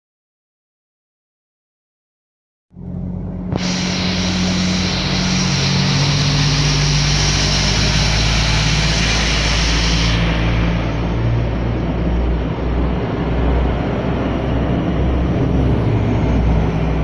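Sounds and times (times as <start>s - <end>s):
diesel train engine running: 2.8s - 17.0s
high hiss: 3.5s - 13.4s.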